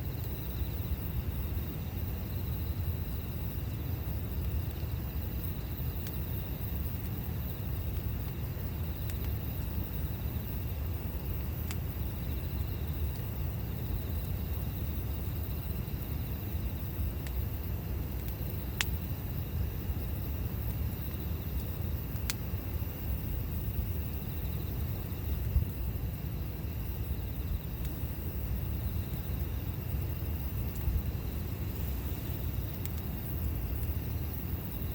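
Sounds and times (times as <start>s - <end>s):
campfire rumbling: 0.0s - 34.9s
fire popping: 0.0s - 34.9s.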